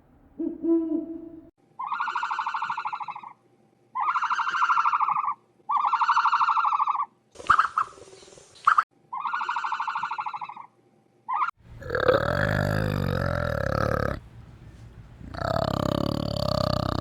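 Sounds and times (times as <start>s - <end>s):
low rough animal call: 11.6s - 17.0s.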